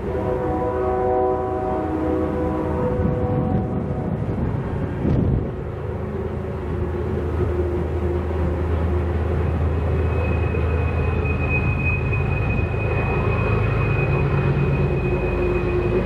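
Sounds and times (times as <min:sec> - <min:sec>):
freight train rumbling past: 0:00.0 - 0:16.0
high wheel squeal: 0:07.4 - 0:16.0.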